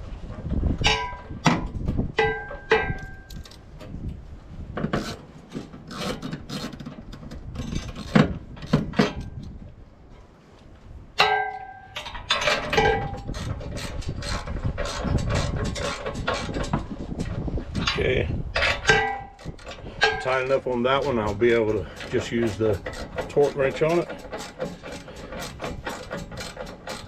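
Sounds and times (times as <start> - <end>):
ringing metal clink: 11.2 - 13.1
metal tools scraping: 11.5 - 27.0.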